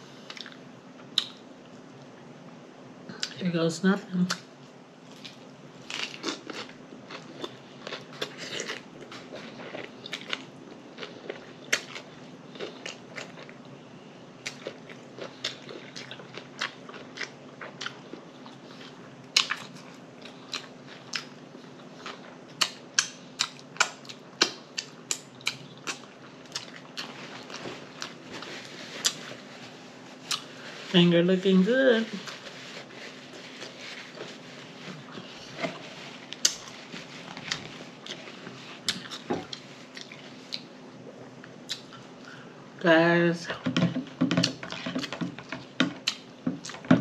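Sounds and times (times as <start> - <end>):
faint hum: 0.0 - 47.0
person chewing a burger: 5.0 - 13.8, 14.4 - 30.9, 32.2 - 42.4.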